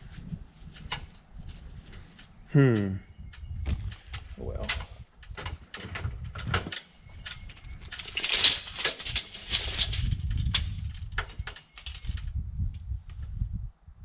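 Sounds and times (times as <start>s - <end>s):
wind buffeting microphone: 0.0s - 14.0s
tools clicking and rattling: 3.8s - 12.3s.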